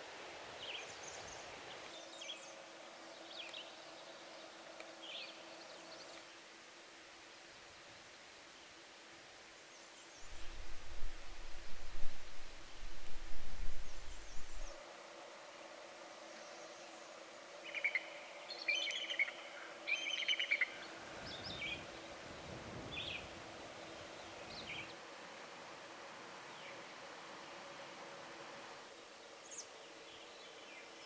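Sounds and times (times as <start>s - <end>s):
songbirds singing: 0.6s - 6.5s, 9.6s - 14.8s, 15.7s - 25.0s
low rumble: 10.3s - 14.8s.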